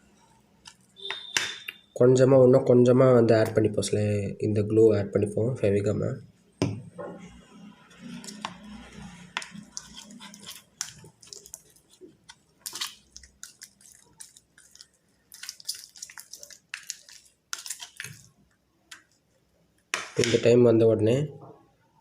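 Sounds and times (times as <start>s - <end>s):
slime squelching: 7.9s - 19.3s.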